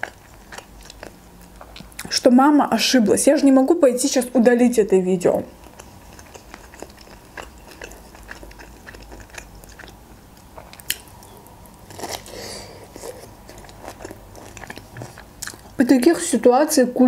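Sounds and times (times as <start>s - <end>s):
soft chewing: 0.0s - 2.2s, 5.5s - 15.9s.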